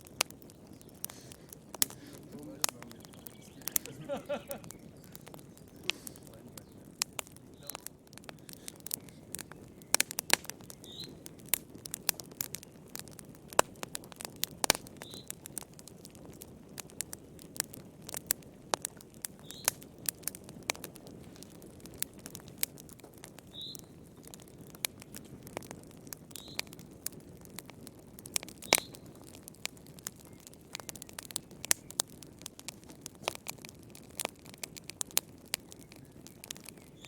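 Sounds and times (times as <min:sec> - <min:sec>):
wood fire crackling and popping: 0:00.0 - 0:37.0
bird chirping: 0:01.8 - 0:07.8, 0:08.9 - 0:11.2, 0:15.0 - 0:15.3.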